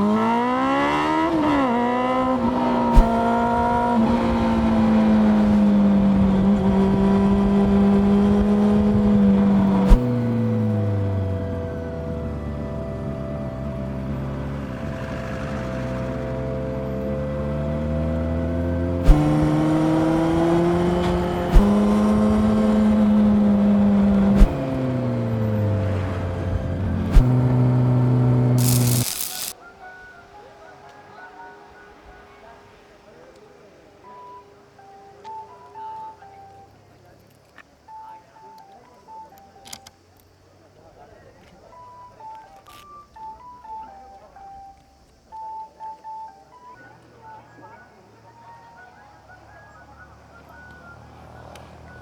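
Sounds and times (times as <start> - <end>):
motorcycle engine revving: 0.0 - 29.6.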